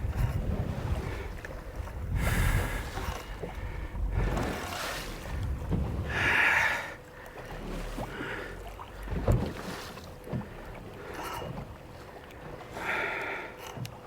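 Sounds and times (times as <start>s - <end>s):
wind on microphone: 0.0s - 6.7s
water splashing against boat hull: 0.0s - 14.0s.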